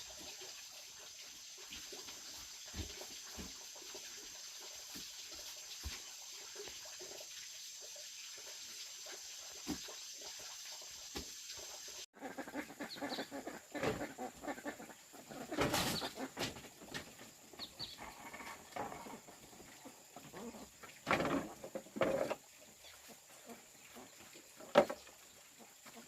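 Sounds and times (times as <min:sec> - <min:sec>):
farm animals calling: 0:12.2 - 0:16.5, 0:17.6 - 0:24.3.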